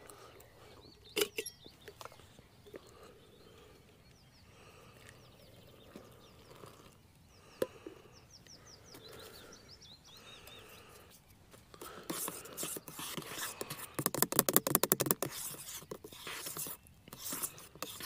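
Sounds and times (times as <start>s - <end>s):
small bird singing: 0.2s - 11.5s.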